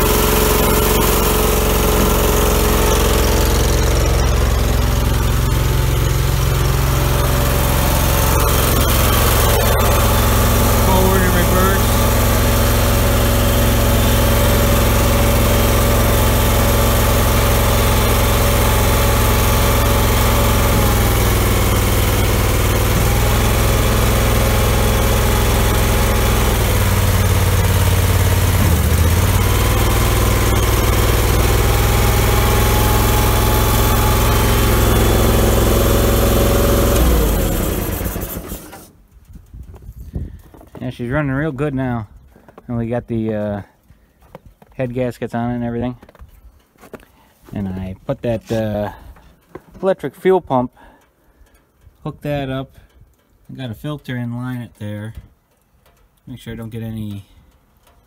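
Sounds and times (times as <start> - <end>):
gas engine running: 0.0 - 39.2.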